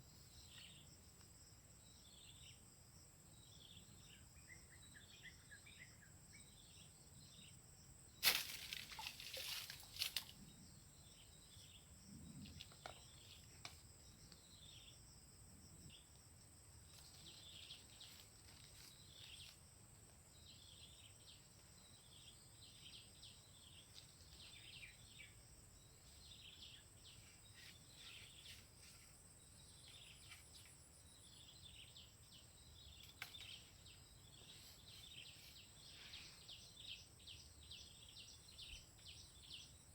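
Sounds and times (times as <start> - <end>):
birds chirping: 20.4 - 39.8.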